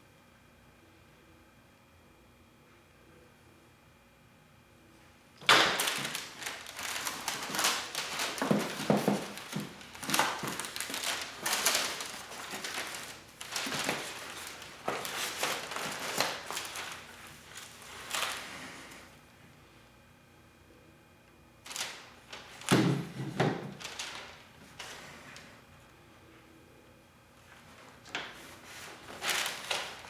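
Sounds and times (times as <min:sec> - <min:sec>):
packaging rustling: 0:05.4 - 0:19.1, 0:21.7 - 0:25.5, 0:27.6 - 0:30.0.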